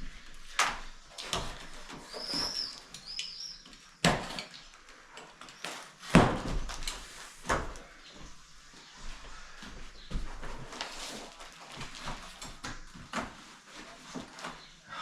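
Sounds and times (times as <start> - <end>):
boxes knocking and thumping: 6.0 - 7.8.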